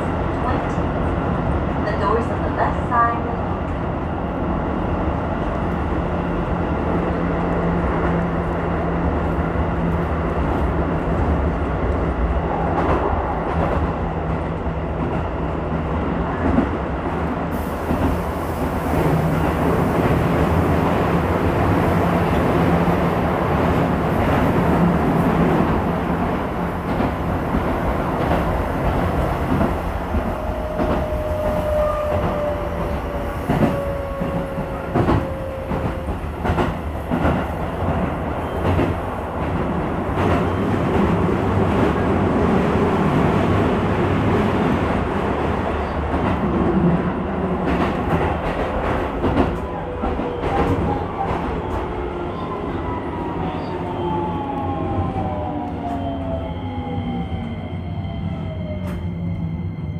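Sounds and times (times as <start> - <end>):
electric train running on rails: 0.0 - 59.9.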